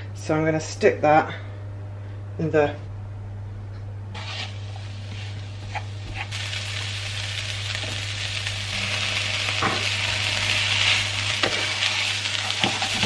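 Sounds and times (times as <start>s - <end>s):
spatula stirring: 4.2s - 6.4s
onions sizzling in a frying pan: 4.2s - 13.0s.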